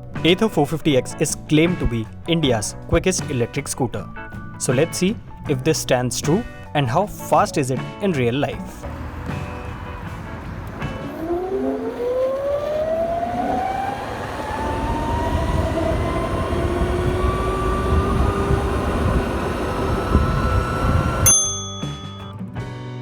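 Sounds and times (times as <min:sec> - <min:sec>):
wind and road noise: 0:08.5 - 0:21.5
electric motor whine: 0:08.8 - 0:21.4.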